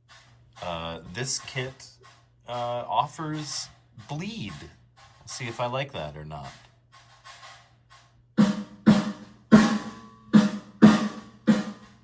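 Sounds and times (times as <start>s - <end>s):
electronic snare drum hits: 3.4s - 12.0s.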